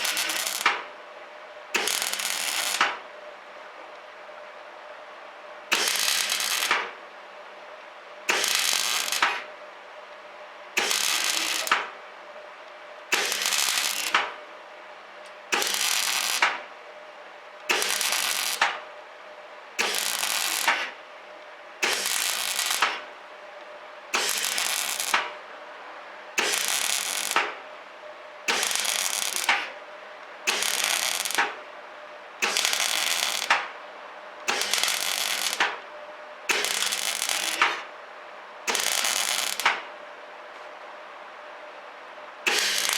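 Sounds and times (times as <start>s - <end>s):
welder arc crackling: 0.0s - 0.8s, 1.8s - 3.0s, 5.7s - 6.9s, 8.3s - 9.5s, 10.8s - 11.9s, 13.1s - 14.4s, 15.5s - 16.6s, 17.6s - 18.8s, 19.8s - 20.9s, 21.8s - 23.1s, 24.2s - 25.4s, 26.4s - 27.6s, 28.5s - 29.7s, 30.5s - 31.6s, 32.4s - 33.7s, 34.4s - 35.8s, 36.5s - 37.8s, 38.7s - 39.8s, 42.5s - 42.9s
faint steady hum: 0.0s - 42.9s.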